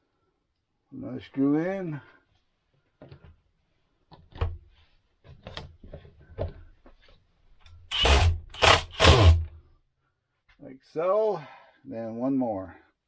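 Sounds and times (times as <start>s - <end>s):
screws and metal parts clicking: 7.9s - 9.5s
short noisy bursts: 7.9s - 9.5s.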